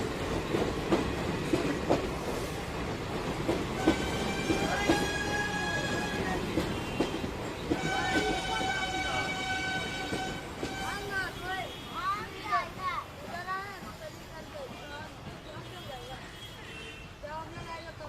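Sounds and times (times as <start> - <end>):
train rolling: 0.0 - 11.5
train horn blasts: 3.8 - 11.9.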